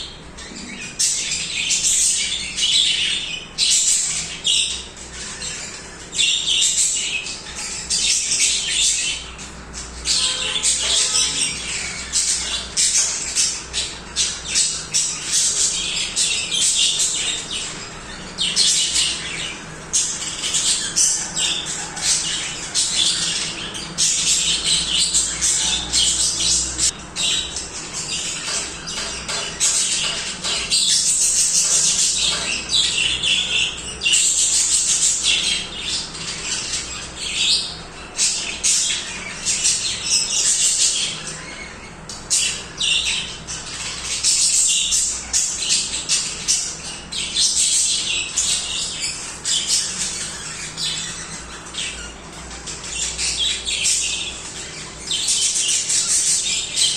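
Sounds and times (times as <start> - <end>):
budgerigars chattering: 0.0 - 56.9
harsh bird squawks: 10.0 - 34.2.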